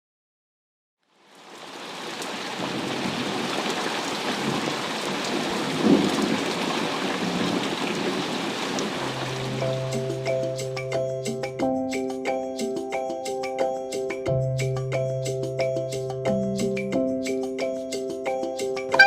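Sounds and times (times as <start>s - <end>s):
rain hissing: 1.1s - 10.6s
low thunder rumble: 5.3s - 8.3s.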